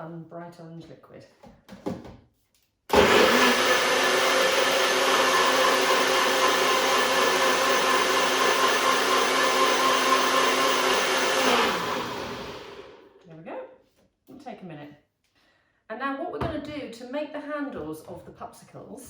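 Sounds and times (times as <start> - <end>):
blender motor winding down: 2.9 - 13.2
electric blender running: 2.9 - 13.2.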